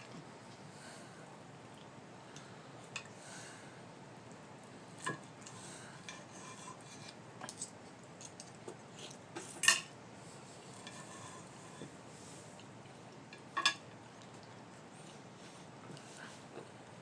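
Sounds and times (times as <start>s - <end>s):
cutlery clinking on a plate: 9.4s - 9.9s.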